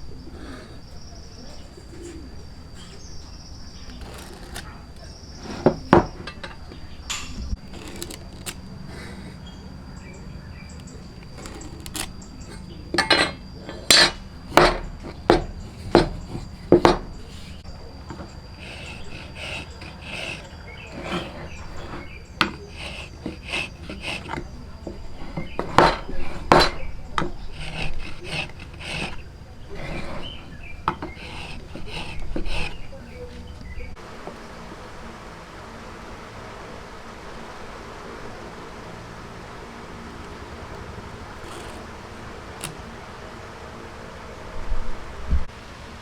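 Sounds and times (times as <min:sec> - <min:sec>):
woodworking tools knocking on wood: 0:05.4 - 0:08.6, 0:12.9 - 0:17.3, 0:21.0 - 0:29.2.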